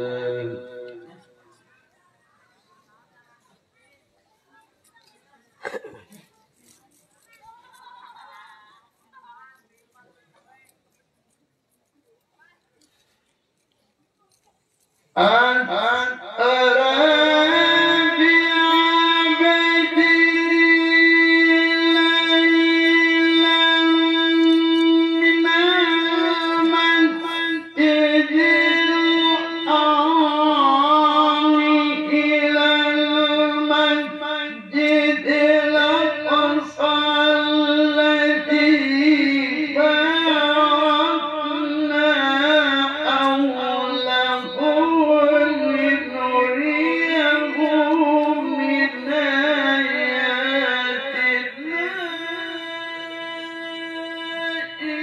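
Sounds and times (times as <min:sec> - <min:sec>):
man reciting melodically: 0:00.0 - 0:01.4, 0:15.1 - 0:55.0.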